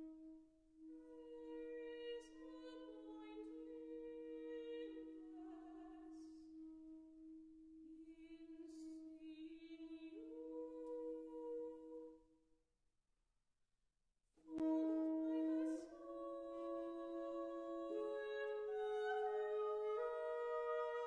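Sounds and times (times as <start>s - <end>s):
saxophone holding long notes: 14.5s - 21.0s
classical voice singing: 14.6s - 21.0s.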